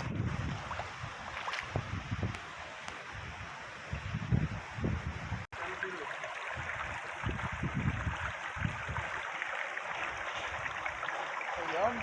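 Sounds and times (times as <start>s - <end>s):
wind buffeting microphone: 0.0s - 5.5s, 6.5s - 9.3s
creek water running: 0.0s - 12.0s.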